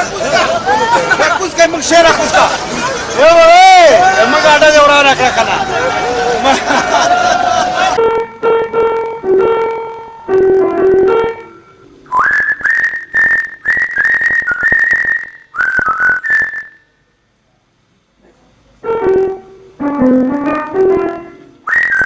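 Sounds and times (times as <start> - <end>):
piano-like music: 8.0 - 11.8, 18.8 - 21.6
high whistling notes: 11.6 - 16.9, 21.6 - 22.0.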